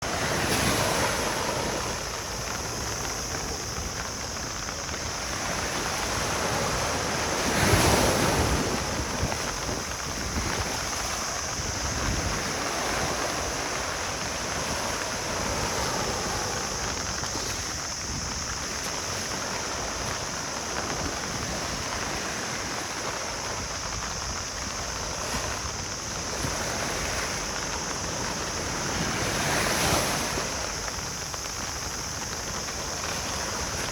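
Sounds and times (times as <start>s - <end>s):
ocean waves washing onto beach: 0.0s - 33.9s
wave breaking: 0.0s - 33.9s.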